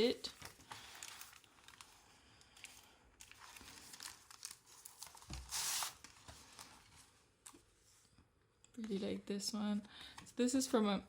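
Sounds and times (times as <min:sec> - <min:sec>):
paper rustling and crinkling: 0:00.2 - 0:07.7.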